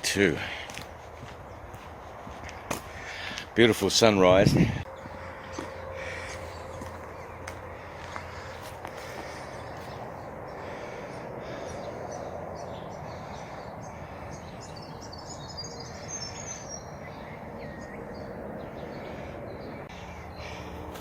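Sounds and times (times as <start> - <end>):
birds chirping: 0.0 - 21.0
distant truck hum: 4.7 - 21.0.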